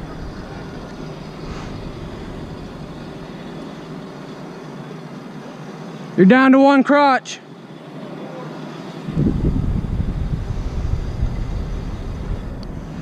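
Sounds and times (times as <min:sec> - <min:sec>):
machine engine running: 0:00.0 - 0:06.2, 0:07.4 - 0:13.0.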